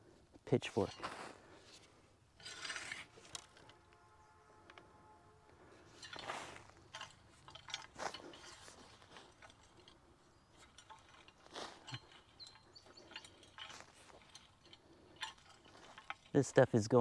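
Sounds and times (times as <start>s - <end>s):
pitchfork scratching bark mulch: 2.4s - 3.6s, 5.8s - 9.4s, 10.8s - 14.7s.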